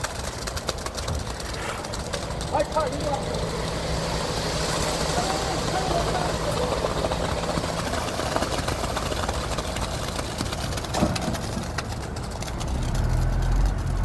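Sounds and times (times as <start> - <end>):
low hum: 0.0 - 14.0
motor running: 0.6 - 14.0.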